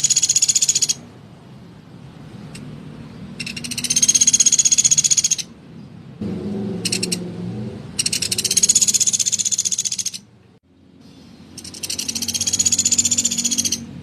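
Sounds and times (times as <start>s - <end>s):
woodpecker rattling trills: 0.0s - 1.0s, 3.4s - 5.5s, 6.8s - 7.2s, 8.0s - 10.3s, 11.5s - 13.9s.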